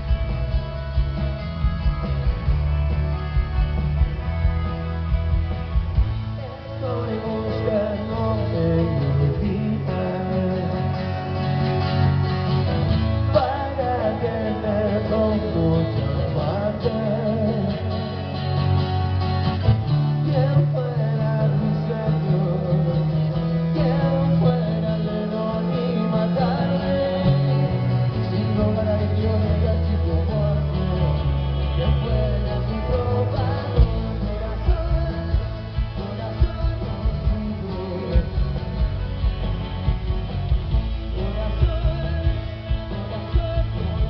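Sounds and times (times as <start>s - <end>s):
rock band playing live: 0.0s - 44.0s
person singing: 6.3s - 12.2s, 13.0s - 18.4s, 20.0s - 39.3s, 40.8s - 44.0s.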